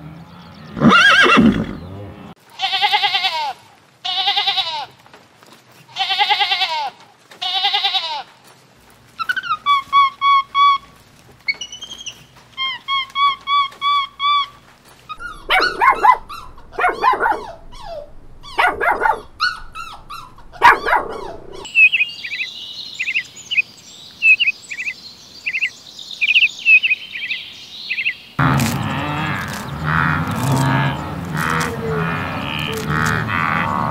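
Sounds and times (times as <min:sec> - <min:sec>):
small birds chirping: 0:00.0 - 0:02.2, 0:09.1 - 0:33.9
quick repeated calls: 0:12.6 - 0:21.7
dog barking and yelping: 0:15.2 - 0:21.7.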